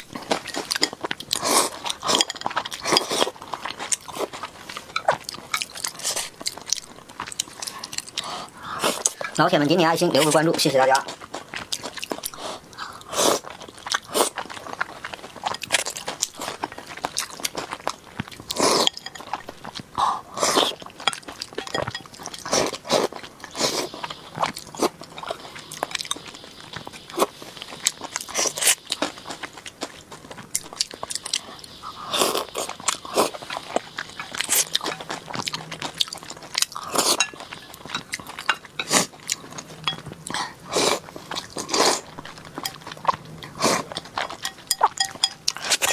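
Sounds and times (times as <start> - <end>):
person chewing and biting: 11.1 - 45.9.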